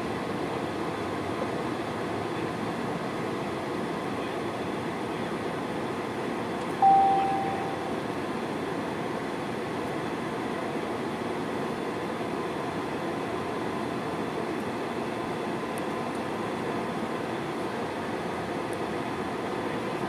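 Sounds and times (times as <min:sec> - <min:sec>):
airplane engine and airflow rush: 0:00.0 - 0:20.0
cabin chime: 0:06.8 - 0:07.9.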